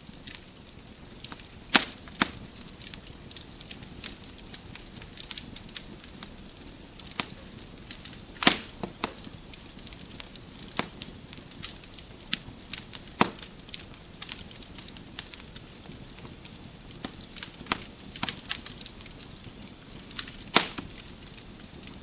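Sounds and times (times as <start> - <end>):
fire hiss: 0.0 - 22.0
wood fire crackling: 0.0 - 22.0.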